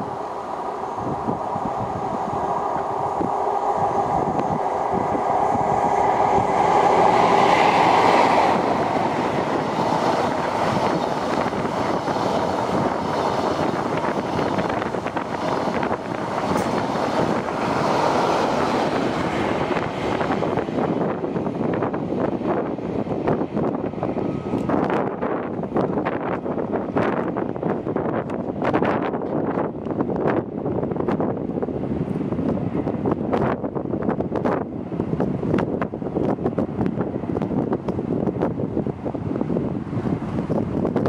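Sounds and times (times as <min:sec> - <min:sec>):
diesel train engine: 0:00.0 - 0:41.0
train wheels clicking on rail: 0:01.2 - 0:30.4, 0:31.0 - 0:38.6.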